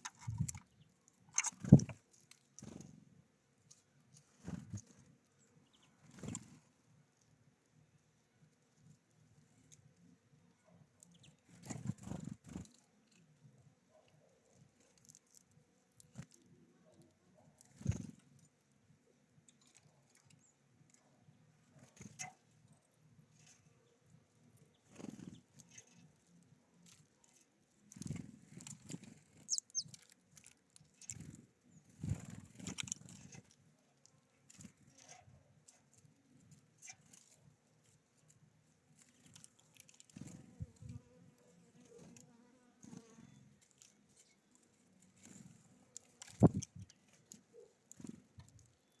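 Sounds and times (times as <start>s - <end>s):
birds tapping and pecking: 0.0s - 7.4s, 10.7s - 49.0s
high bird chirps: 29.4s - 30.0s.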